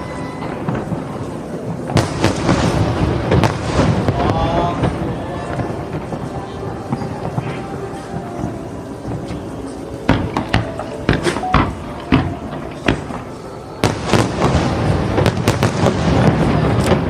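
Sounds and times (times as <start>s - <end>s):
fireworks banging and cracking: 0.0s - 17.0s.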